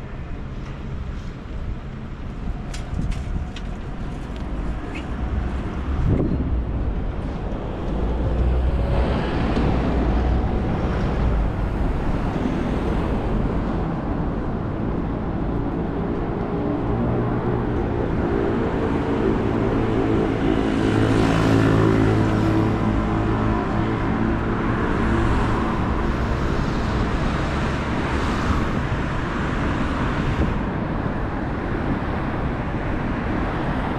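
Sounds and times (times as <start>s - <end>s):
vehicles passing: 0.0s - 33.9s.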